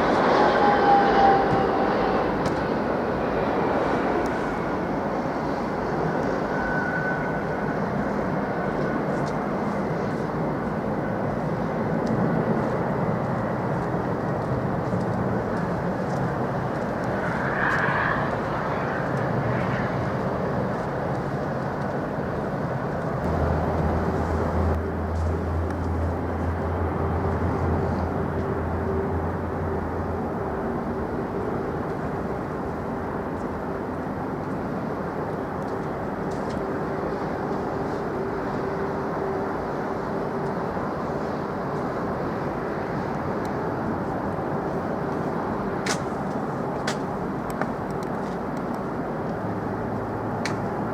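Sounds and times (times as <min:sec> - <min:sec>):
jet engines rushing: 0:00.0 - 0:50.9
low hum: 0:23.2 - 0:30.2.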